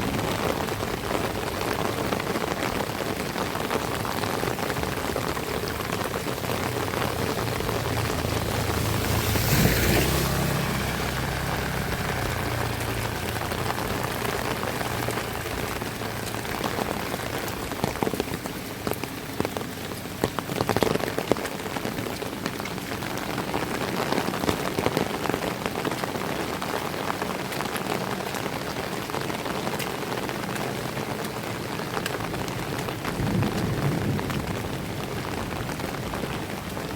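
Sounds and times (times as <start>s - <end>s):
heavy rain falling: 0.0s - 36.9s
sharp drips and splats: 0.0s - 36.9s
low rumble: 6.6s - 17.7s.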